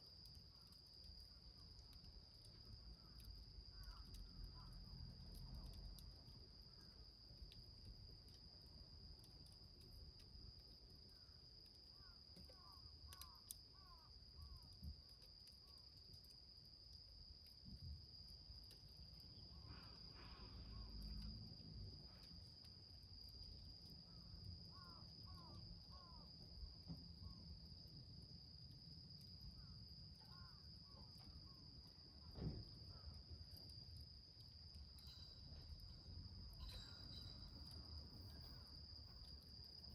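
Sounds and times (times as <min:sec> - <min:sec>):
insect drone: 0:00.0 - 0:39.9
faint clicks: 0:11.1 - 0:16.4.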